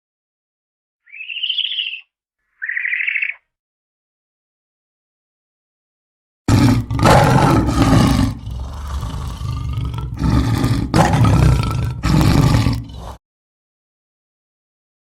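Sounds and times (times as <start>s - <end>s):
large animal roaring: 6.5s - 13.2s.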